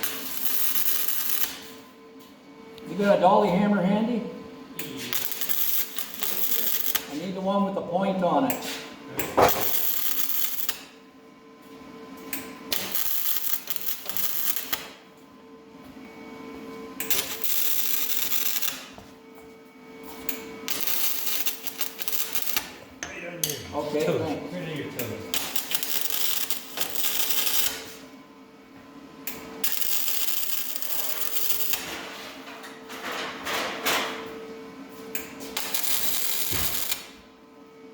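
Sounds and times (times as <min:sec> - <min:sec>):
welder arc crackling: 0:00.0 - 0:01.7, 0:05.0 - 0:07.4, 0:09.4 - 0:10.9, 0:12.7 - 0:15.0, 0:17.0 - 0:18.9, 0:20.6 - 0:22.8, 0:25.3 - 0:28.0, 0:29.6 - 0:31.9, 0:35.6 - 0:37.2.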